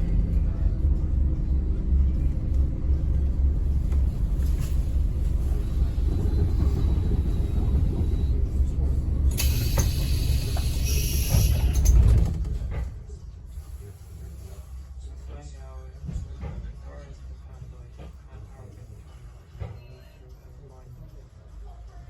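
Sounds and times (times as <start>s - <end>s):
bus engine and road rumble: 0.0s - 22.0s
air hiss: 9.3s - 12.0s.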